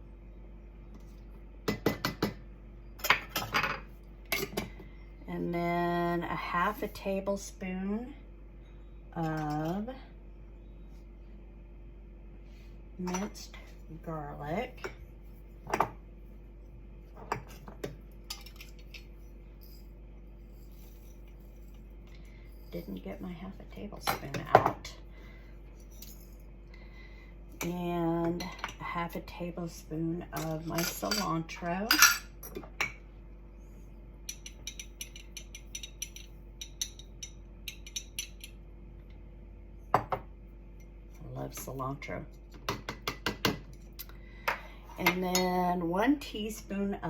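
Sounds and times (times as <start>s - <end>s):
faint steady hum: 0.0s - 47.0s
measuring spoons clinking: 34.3s - 38.6s.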